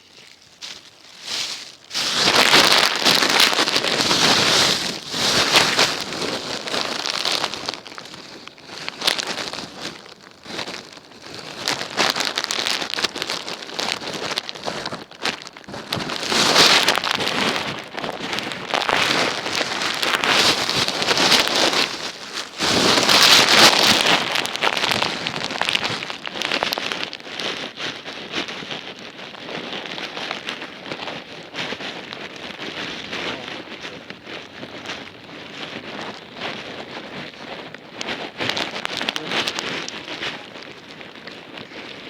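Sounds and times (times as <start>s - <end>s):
rain falling: 33.3s - 42.0s.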